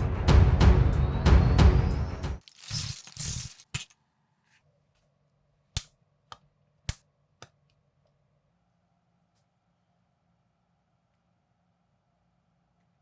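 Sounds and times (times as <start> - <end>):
plastic bricks clattering: 2.4 - 3.9.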